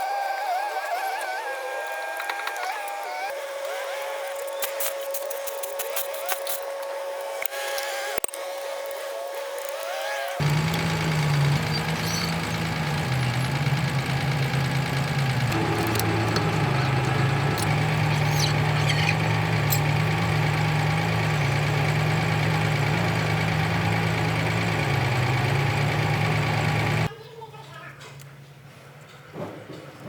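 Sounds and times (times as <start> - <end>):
wheel loader diesel engine running: 10.4 - 27.1.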